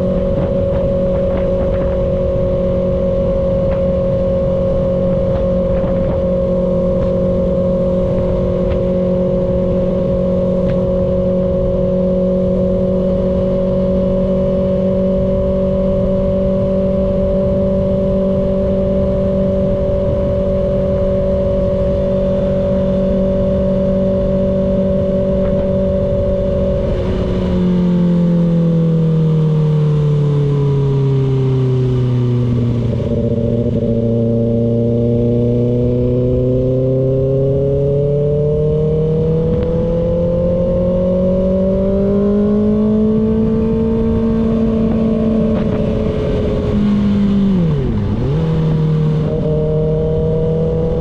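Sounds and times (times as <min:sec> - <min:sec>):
motorcycle engine cruising: 0:00.0 - 0:51.0
wind noise rushing: 0:16.5 - 0:28.3, 0:39.2 - 0:51.0.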